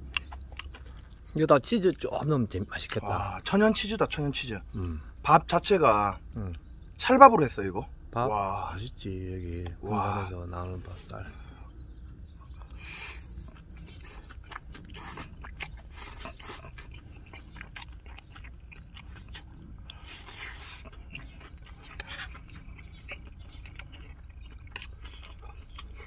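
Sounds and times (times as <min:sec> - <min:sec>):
person chewing with wet smacking: 0:00.0 - 0:02.1, 0:11.7 - 0:26.0
airy slurps: 0:12.7 - 0:24.3.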